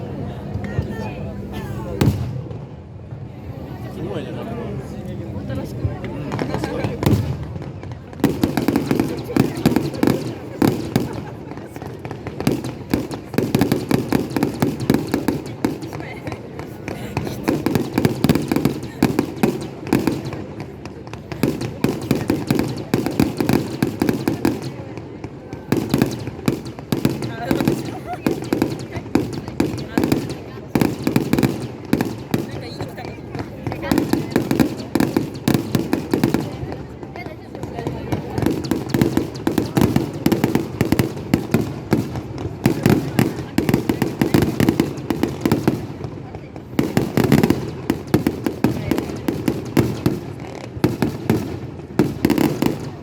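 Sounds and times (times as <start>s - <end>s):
fireworks bangs and crackles: 1.9s - 4.1s, 4.8s - 53.0s.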